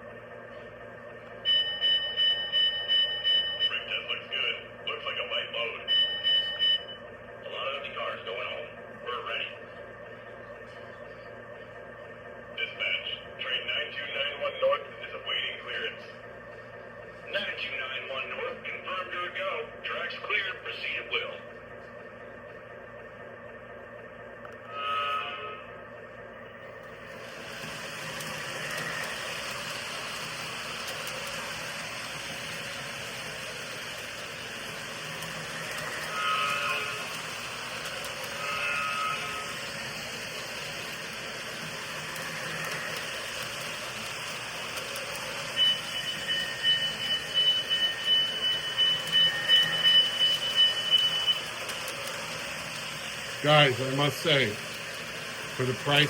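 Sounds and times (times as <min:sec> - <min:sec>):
model train rolling rumble: 0:23.1 - 0:56.0
train horn toots: 0:36.0 - 0:37.1, 0:38.4 - 0:39.6
pulsing ringing: 0:45.5 - 0:51.6.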